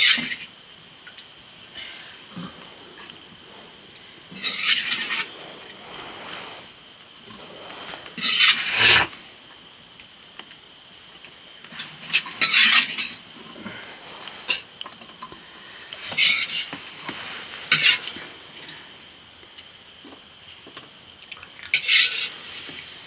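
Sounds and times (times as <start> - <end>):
rough scraping strokes: 4.3 - 9.2, 16.0 - 18.6.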